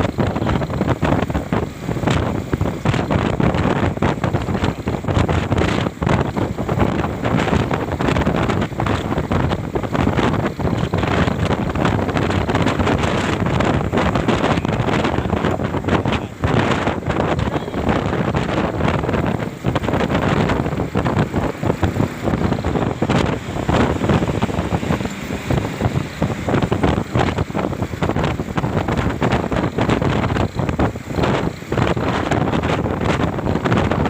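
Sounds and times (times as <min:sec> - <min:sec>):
gusty wind on microphone: 0:00.0 - 0:34.0
low rumble: 0:01.7 - 0:34.0.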